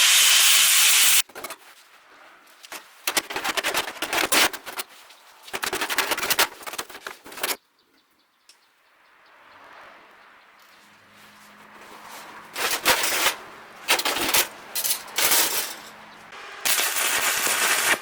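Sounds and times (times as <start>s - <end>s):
arc welding hiss: 0.0s - 1.2s, 16.7s - 18.0s
welding crackling and popping: 16.6s - 18.0s.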